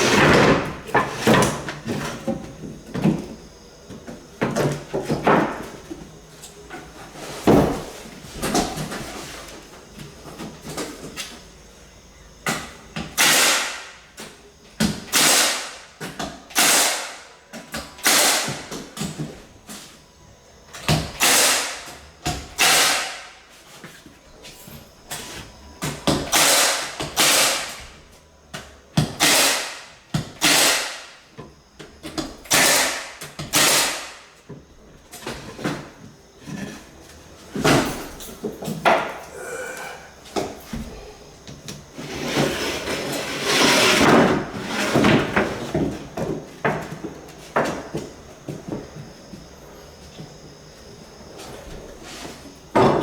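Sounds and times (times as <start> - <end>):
tool striking floorboards: 0.0 - 3.4, 7.4 - 9.1.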